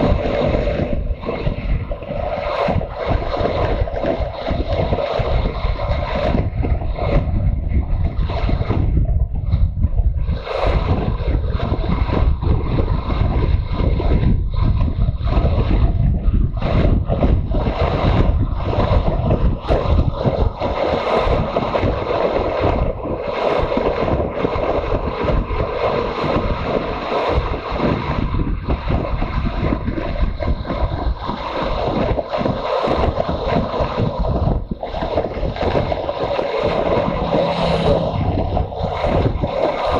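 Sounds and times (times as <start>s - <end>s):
wind rushing over microphone: 0.0s - 39.9s
motorcycle engine running: 36.7s - 39.4s.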